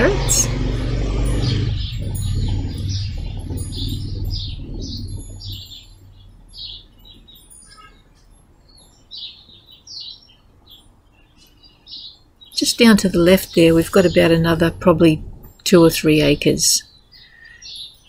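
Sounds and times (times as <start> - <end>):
utility vehicle engine idling: 0.0 - 9.3, 12.6 - 16.6
small birds chirping: 0.0 - 18.0.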